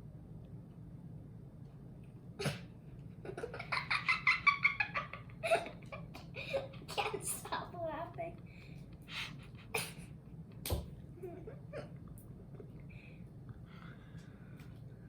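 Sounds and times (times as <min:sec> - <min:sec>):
child giggling: 0:03.2 - 0:07.8, 0:11.2 - 0:12.0.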